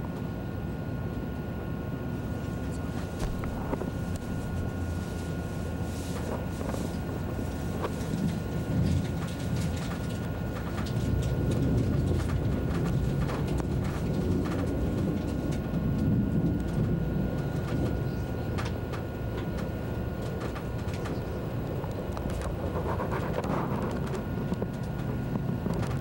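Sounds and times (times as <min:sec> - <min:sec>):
high-speed train rumble: 0:00.0 - 0:26.0
faint clicks and ticks: 0:06.2 - 0:26.0.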